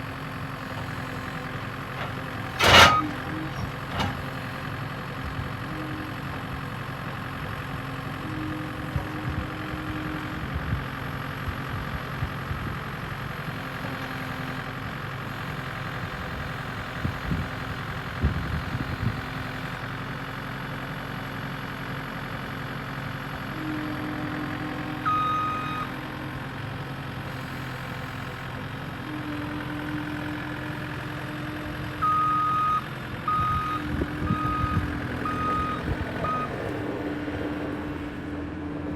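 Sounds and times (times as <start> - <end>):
skid steer engine running: 0.0 - 38.9
metal clanks: 1.9 - 4.4
reversing alarm beeping: 2.6 - 4.1, 24.4 - 26.0, 32.0 - 36.6.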